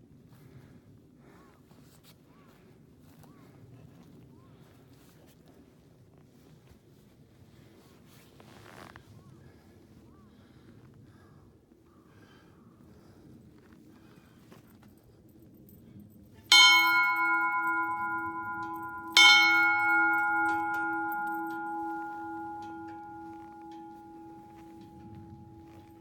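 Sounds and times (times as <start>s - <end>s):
metal bell ringing: 16.5s - 26.0s.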